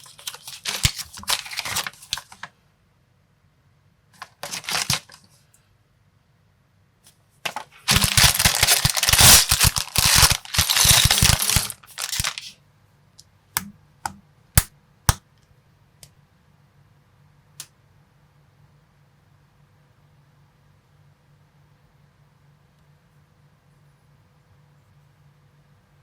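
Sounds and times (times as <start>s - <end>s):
plastic bricks clattering: 7.5s - 12.4s
plastic pieces clicking: 7.9s - 12.4s.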